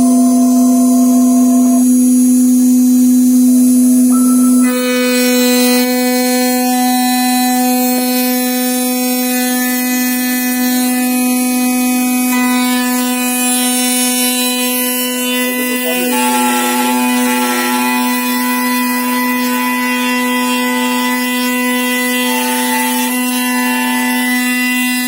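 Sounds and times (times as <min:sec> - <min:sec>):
router spindle whining: 0:00.0 - 0:25.0.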